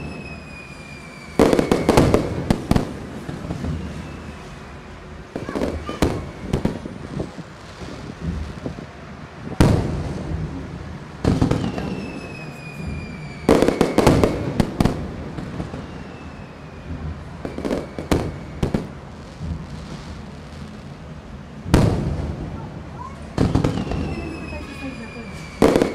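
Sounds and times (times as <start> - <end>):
faint falling whistle: 0.0 - 2.3, 3.5 - 5.0, 11.6 - 14.3, 15.6 - 18.9, 23.7 - 25.9
firework cracks: 0.0 - 25.9
firework shells booming: 0.0 - 25.9.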